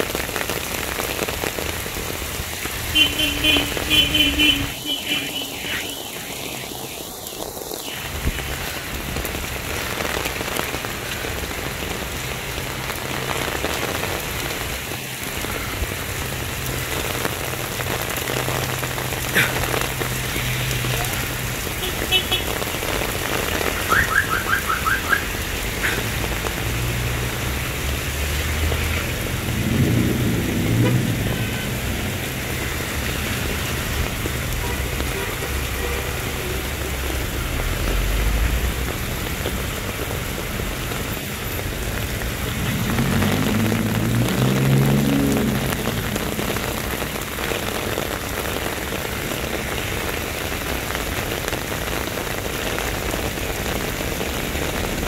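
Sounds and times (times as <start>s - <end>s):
heavy rain pouring: 0.0s - 55.0s
vehicle engine passing: 25.4s - 33.8s, 42.3s - 47.3s.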